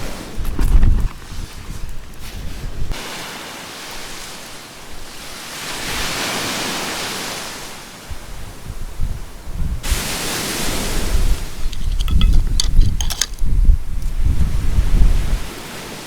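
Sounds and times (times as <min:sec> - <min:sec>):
wind buffeting microphone: 0:00.0 - 0:03.0, 0:08.1 - 0:15.8
sea waves washing onto beach: 0:00.0 - 0:16.0.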